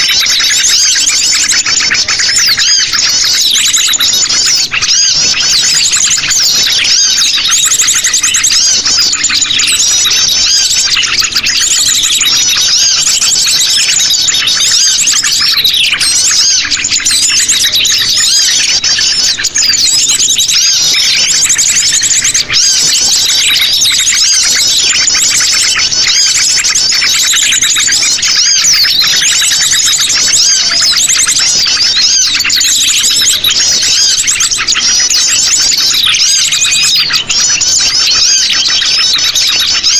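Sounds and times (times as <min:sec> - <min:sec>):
chorus of birds chirping: 0:00.0 - 0:39.9.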